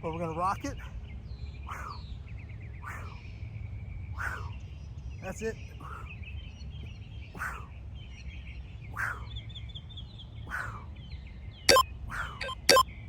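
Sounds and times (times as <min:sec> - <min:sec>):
small birds chirping: 0:00.0 - 0:12.8
sharp clicks: 0:12.4 - 0:12.8.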